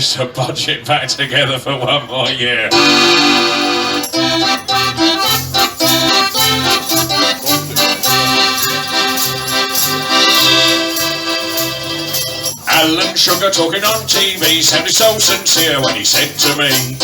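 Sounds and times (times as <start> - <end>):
accordion: 2.2 - 17.0
percussion strikes: 2.7 - 17.0
bouncing bass line: 2.8 - 17.0.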